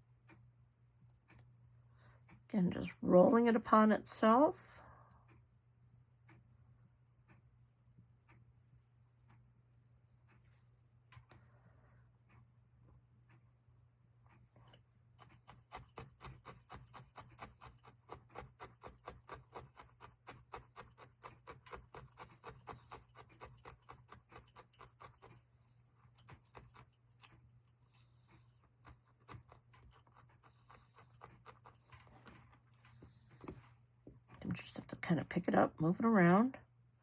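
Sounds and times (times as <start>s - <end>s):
felting needle poking: 14.6s - 33.6s.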